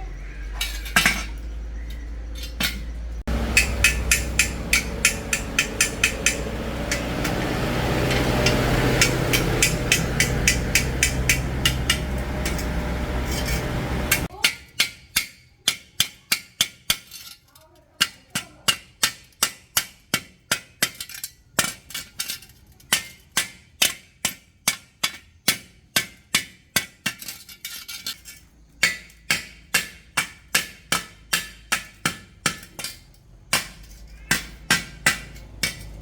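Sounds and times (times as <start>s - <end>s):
hammer ringing on metal: 3.3s - 14.3s
low hum: 3.3s - 14.3s.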